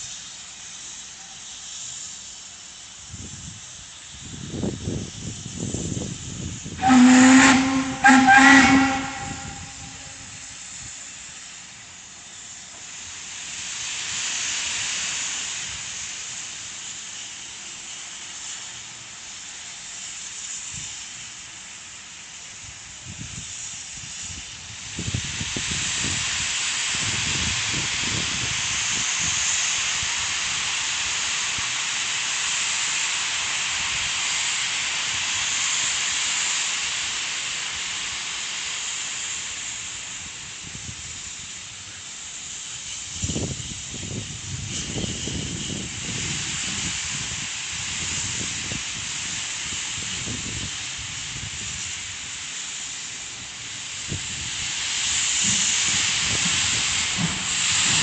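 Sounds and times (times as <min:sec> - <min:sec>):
steam locomotive hissing steam: 0:00.0 - 0:58.0.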